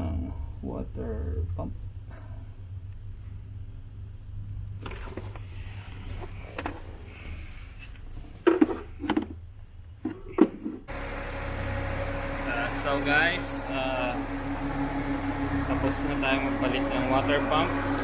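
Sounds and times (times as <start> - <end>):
low steady hum: 0.0 - 18.0
loud steady background noise: 10.9 - 18.0.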